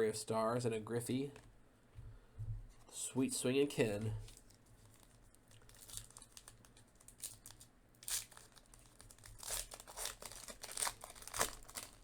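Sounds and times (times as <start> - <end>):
wrappers crinkling and tearing: 4.2 - 12.0.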